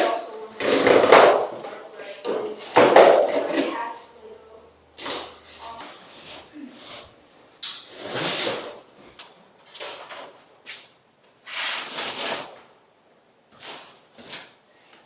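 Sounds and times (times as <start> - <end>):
objects scraping and sliding: 0.0 - 4.0.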